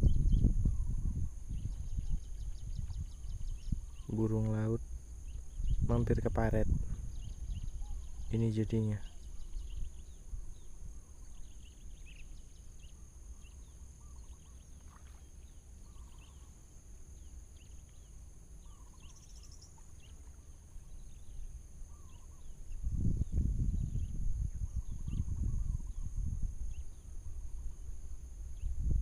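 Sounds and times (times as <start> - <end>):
steady low rumble: 0.0 - 13.4, 20.8 - 29.0
birds chirping: 0.0 - 27.3.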